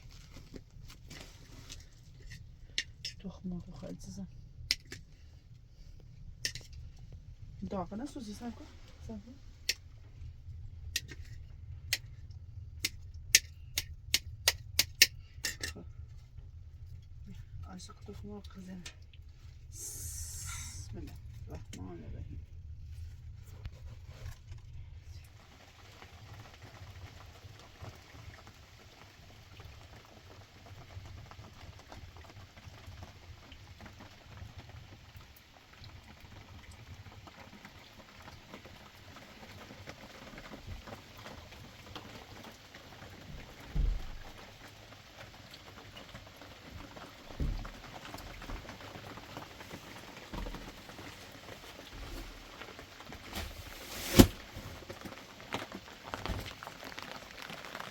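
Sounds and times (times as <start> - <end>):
eggs sizzling in a pan: 19.6 - 20.9, 55.0 - 57.9.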